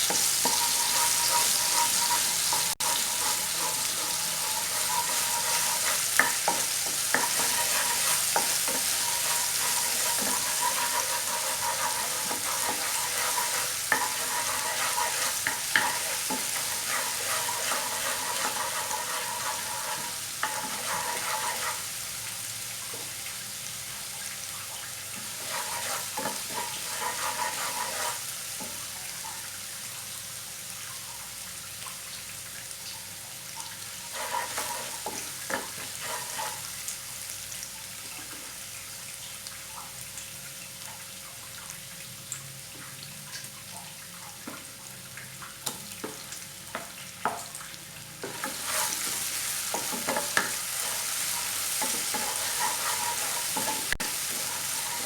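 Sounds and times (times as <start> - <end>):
spatula scraping a pan: 0.0 - 22.1, 25.1 - 28.8, 34.1 - 36.9, 48.2 - 55.0
food sizzling in oil: 0.0 - 55.0.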